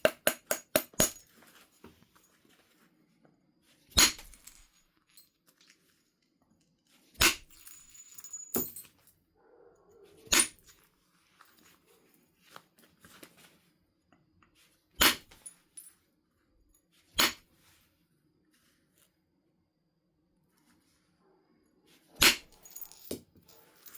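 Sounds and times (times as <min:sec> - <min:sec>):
hammer cracking stone: 0:00.0 - 0:01.2, 0:04.0 - 0:04.6, 0:17.2 - 0:17.4.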